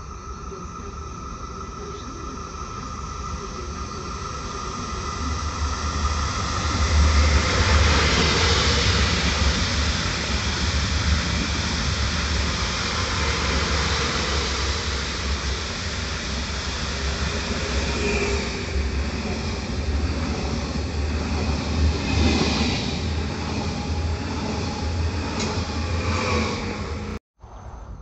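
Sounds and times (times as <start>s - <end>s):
electric train passing: 0.0s - 28.0s
train drawing in: 0.0s - 28.0s.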